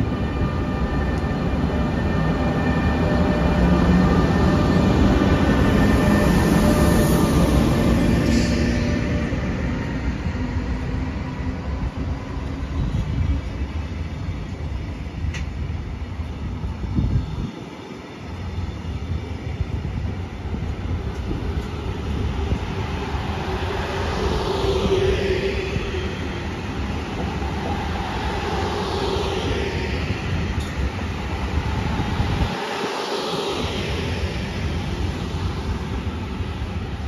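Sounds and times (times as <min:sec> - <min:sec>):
train wheels rumbling on rails: 0:00.0 - 0:37.0
rising whine: 0:20.8 - 0:37.0.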